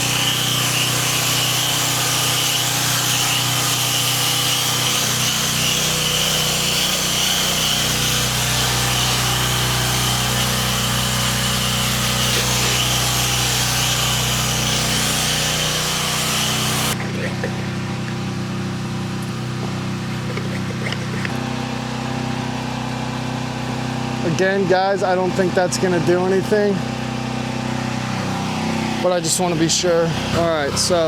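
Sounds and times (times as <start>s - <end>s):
high-pressure water spray hissing: 0.0s - 17.0s
pressure washer engine droning: 0.0s - 31.0s.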